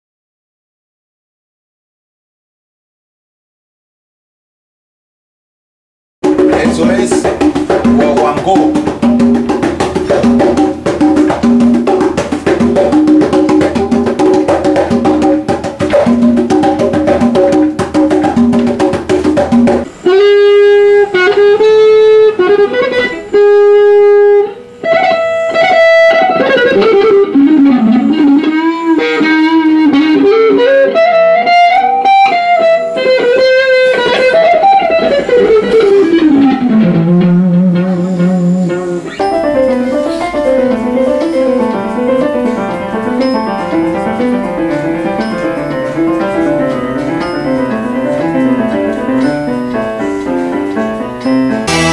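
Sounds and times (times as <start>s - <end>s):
latin-style music with fast percussion: 6.2s - 21.2s, 25.7s - 51.9s
electric guitar sliding notes: 6.2s - 51.9s.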